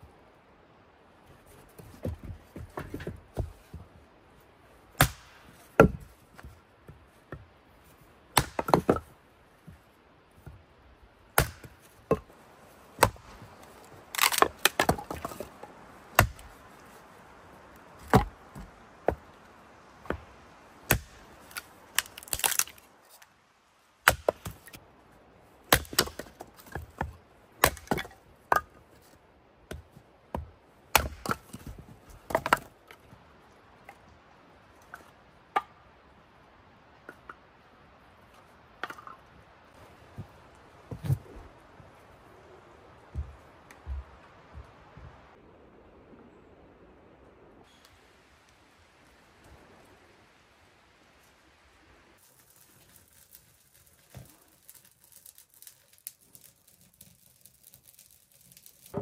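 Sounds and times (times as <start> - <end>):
axe chopping wood: 5.0 - 6.5, 8.3 - 9.1, 11.3 - 12.3, 13.0 - 13.6, 14.2 - 16.6, 18.0 - 19.2, 20.0 - 22.8, 24.0 - 24.8, 25.7 - 28.6, 29.7 - 31.7
wood splintering: 11.4 - 16.6, 20.0 - 23.2.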